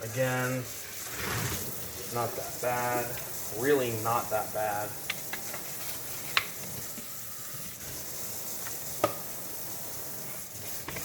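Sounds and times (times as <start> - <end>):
brush scrubbing: 0.0 - 8.9, 10.2 - 11.0
water hissing: 0.0 - 11.0.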